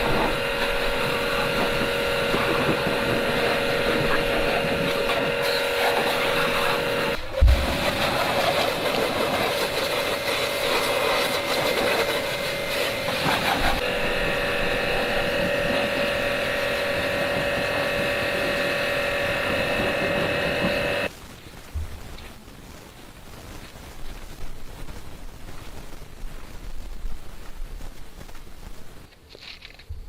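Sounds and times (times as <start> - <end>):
motorcycle engine running: 0.0 - 21.1.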